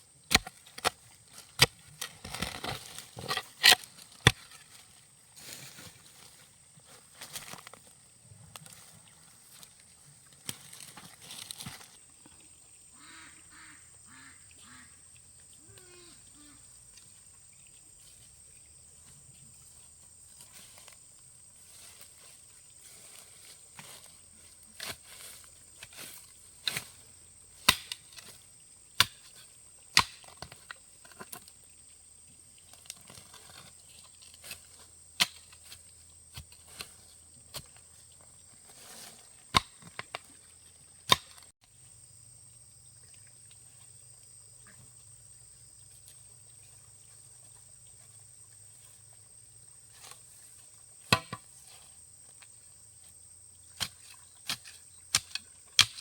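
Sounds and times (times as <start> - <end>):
hand tool chopping strikes: 27.6 - 28.0, 30.0 - 30.3, 39.5 - 39.9, 41.1 - 41.4, 51.1 - 51.4.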